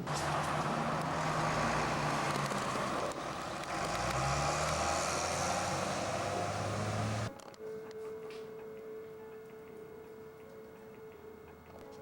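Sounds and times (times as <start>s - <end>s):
engine humming: 0.0s - 7.3s.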